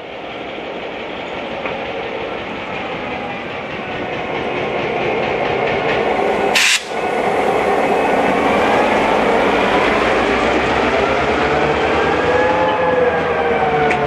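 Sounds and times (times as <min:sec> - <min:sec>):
train wheels rumbling on rails: 0:00.0 - 0:14.0
short sharp hiss: 0:06.6 - 0:07.0.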